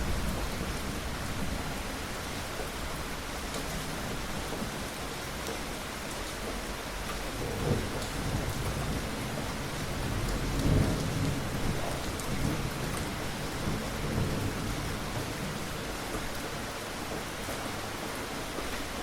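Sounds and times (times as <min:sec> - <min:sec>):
low rumbling thunder: 0:00.0 - 0:02.2, 0:07.3 - 0:16.0
rain hiss: 0:00.0 - 0:19.0.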